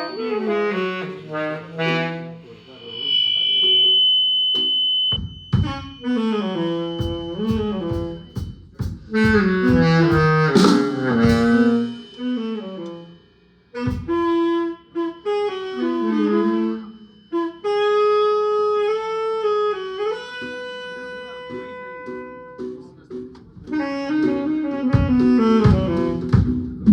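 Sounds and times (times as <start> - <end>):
drum kit hits: 7.0 - 12.4, 24.9 - 26.9.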